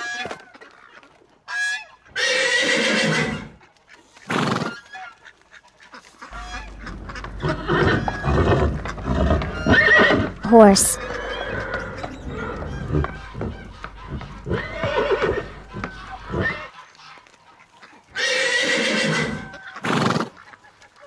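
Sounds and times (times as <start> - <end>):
horse neighing: 2.2 - 3.5, 6.3 - 16.7, 18.2 - 20.3
irregular knocks: 6.3 - 16.5
low rumble: 6.3 - 16.6
horse blowing: 6.3 - 16.7.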